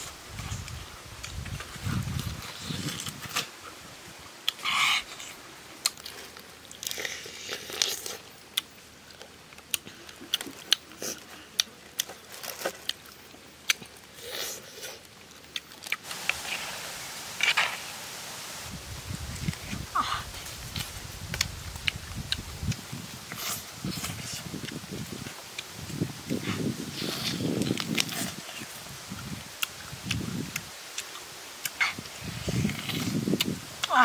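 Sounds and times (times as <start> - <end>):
person chewing with wet clicks: 4.4 - 16.4, 20.6 - 26.6, 27.3 - 34.0.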